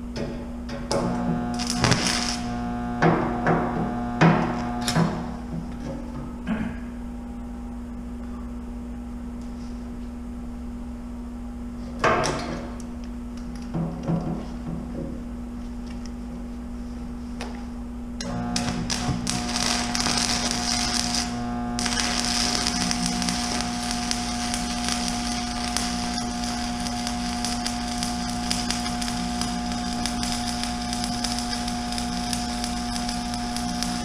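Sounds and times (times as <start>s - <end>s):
steady hum: 0.0s - 34.0s
welding arc crackling: 0.9s - 5.5s, 18.2s - 34.0s.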